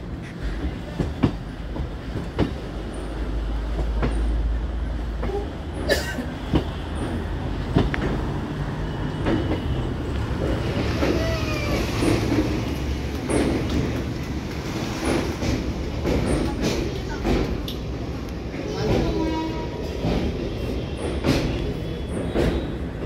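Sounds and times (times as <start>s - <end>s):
train rumbling: 0.0s - 23.0s
wheels clacking over rail joints: 5.0s - 23.0s.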